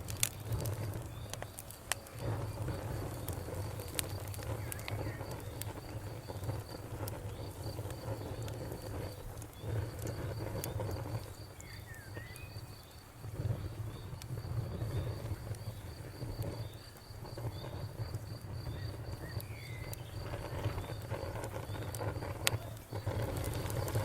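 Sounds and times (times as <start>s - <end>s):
campfire crackling and popping: 0.0s - 24.0s
insect chirping: 0.0s - 24.0s
bird chirps: 11.6s - 13.0s, 18.6s - 21.0s.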